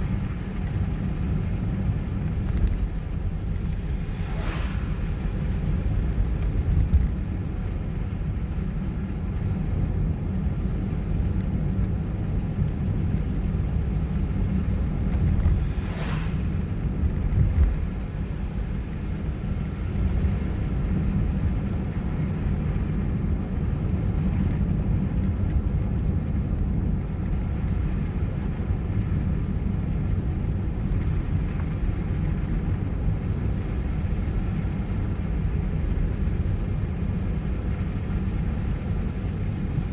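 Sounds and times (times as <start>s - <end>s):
brief swish: 4.0s - 5.2s, 15.6s - 16.6s.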